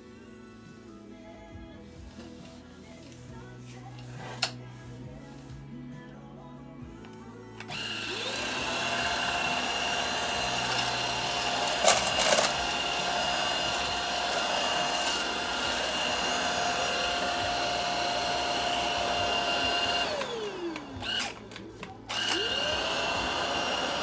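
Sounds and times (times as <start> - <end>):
vacuum motor whine: 7.6 - 24.0.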